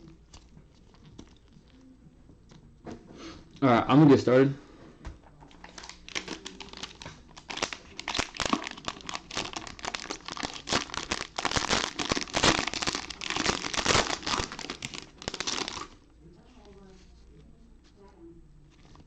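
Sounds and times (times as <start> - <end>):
plastic wrapper crinkling and tearing: 5.5 - 16.7.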